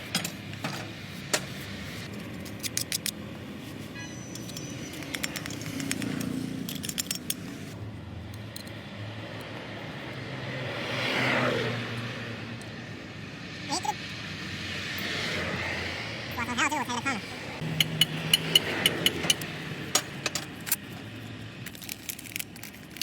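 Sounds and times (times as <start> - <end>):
small metal parts clinking: 2.1 - 3.2, 4.0 - 7.8, 17.8 - 23.0
vehicle passing by: 5.1 - 8.2, 8.8 - 20.2.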